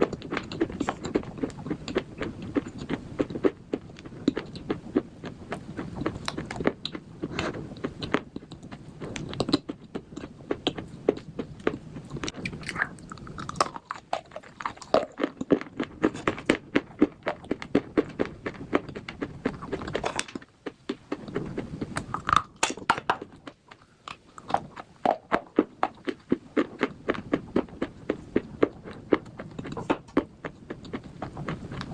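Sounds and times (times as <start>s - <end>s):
crisp crunching bites: 11.7s - 20.5s.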